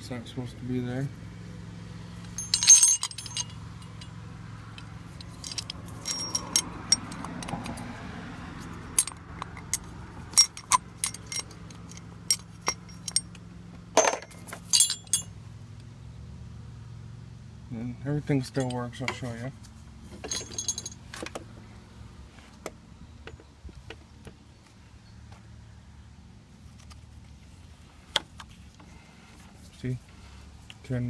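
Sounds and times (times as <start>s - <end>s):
low steady hum: 0.0s - 8.0s, 8.7s - 21.0s
small metal objects clinking: 2.2s - 7.9s, 9.0s - 13.4s, 14.0s - 15.3s, 20.2s - 21.0s.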